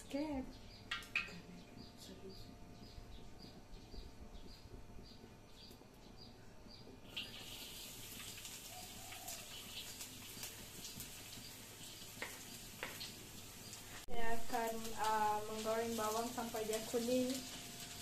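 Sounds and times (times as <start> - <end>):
bird chirping: 0.2 - 7.8
garlic sizzling in hot oil: 7.1 - 18.0.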